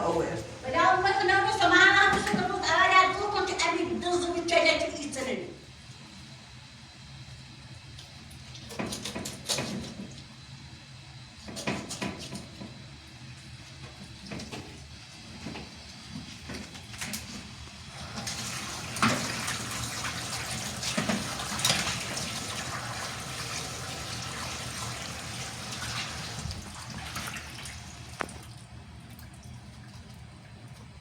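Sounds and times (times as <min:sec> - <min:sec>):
water running and splashing: 0:18.0 - 0:30.2.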